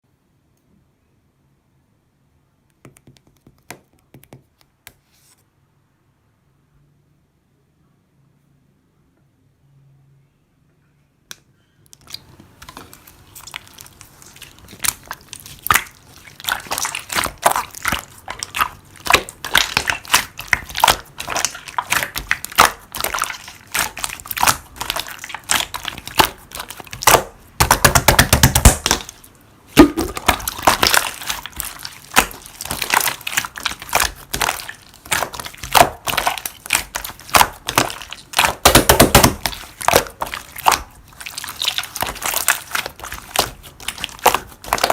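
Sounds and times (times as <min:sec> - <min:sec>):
slime squished by hand: 0:12.1 - 0:44.9.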